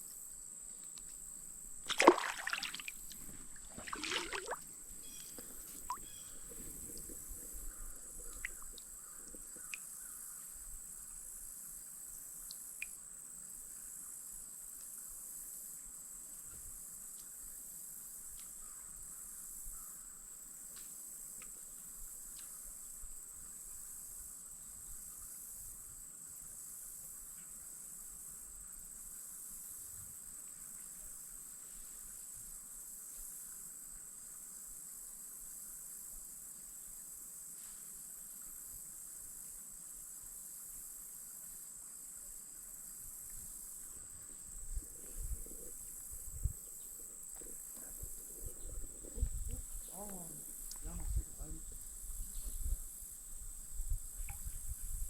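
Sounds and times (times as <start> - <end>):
insects buzzing: 0.0 - 25.3, 37.4 - 55.0.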